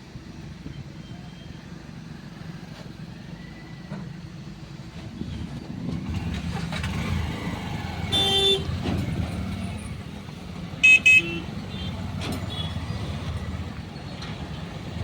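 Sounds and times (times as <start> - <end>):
motor vehicle rumble: 0.0 - 15.0
loud horn blast: 8.1 - 8.8, 10.8 - 12.8.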